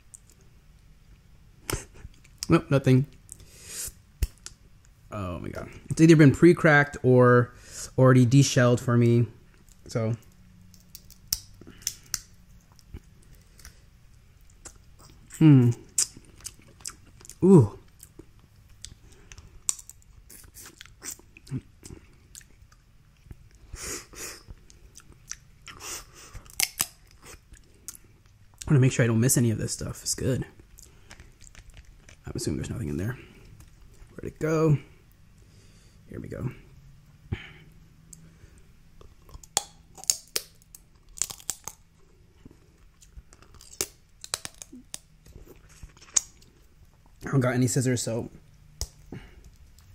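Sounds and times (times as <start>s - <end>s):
shellfish shells cracking: 9.7s - 13.8s, 19.1s - 21.0s, 26.4s - 27.2s, 30.7s - 32.3s, 39.2s - 41.9s, 43.0s - 46.5s
person chewing with lip smacks: 10.8s - 23.6s, 30.6s - 32.2s
faint crinkling and tearing: 30.0s - 34.2s, 40.3s - 47.2s.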